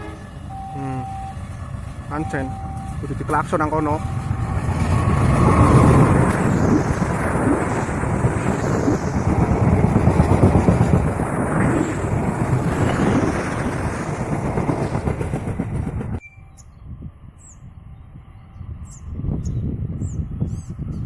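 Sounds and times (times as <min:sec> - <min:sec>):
train wheels rumbling and rattling: 0:00.0 - 0:16.2.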